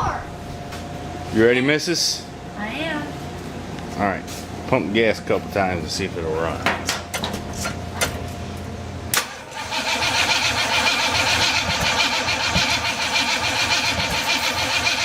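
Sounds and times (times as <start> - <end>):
engine cranking: 9.2 - 15.0.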